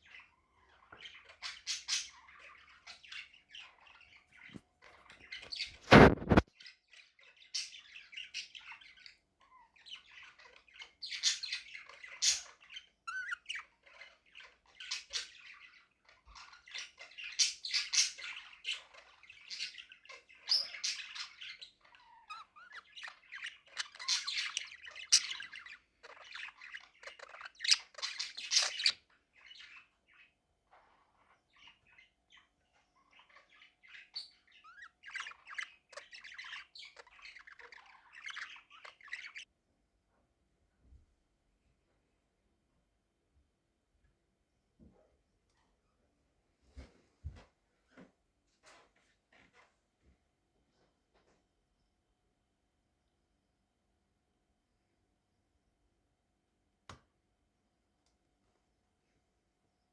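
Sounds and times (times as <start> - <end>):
budgerigars chattering and chirping: 0.0 - 39.5.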